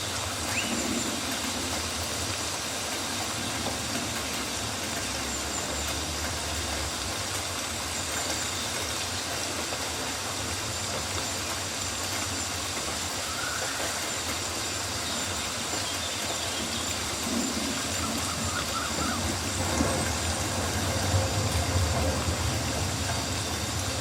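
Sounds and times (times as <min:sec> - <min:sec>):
rain falling on leaves: 0:00.0 - 0:24.0
faint rising whistle: 0:16.4 - 0:22.9.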